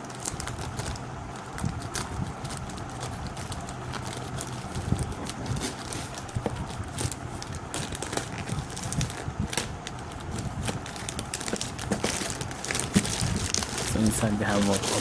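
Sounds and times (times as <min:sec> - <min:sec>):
packaging clicking and crackling: 0:00.0 - 0:15.0.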